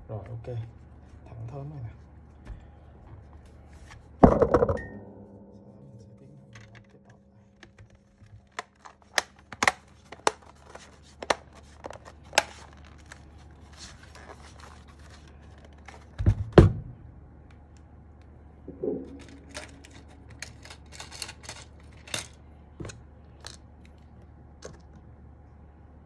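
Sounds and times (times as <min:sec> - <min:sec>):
double knock: 0:04.2 - 0:07.4.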